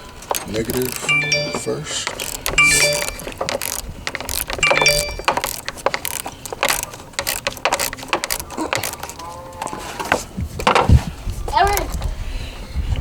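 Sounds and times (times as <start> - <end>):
ratchet wrench clicking: 0.3 - 9.2.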